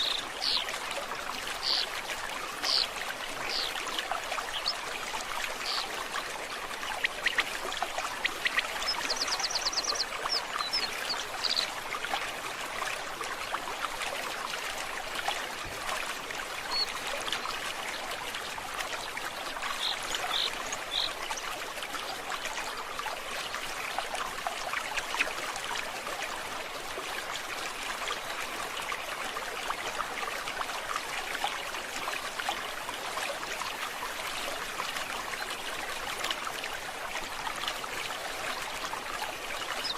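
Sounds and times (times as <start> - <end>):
bird calls: 0.0 - 0.7, 1.6 - 1.9, 2.6 - 3.8, 5.5 - 5.9, 8.2 - 11.7
stream babbling: 0.0 - 39.9.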